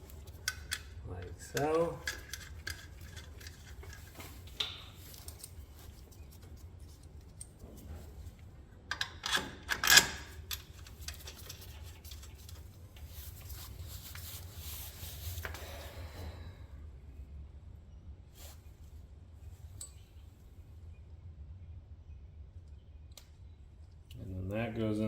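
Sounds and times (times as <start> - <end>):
steady low hum: 0.0 - 25.0
metal tools clicking and clinking: 0.3 - 5.6.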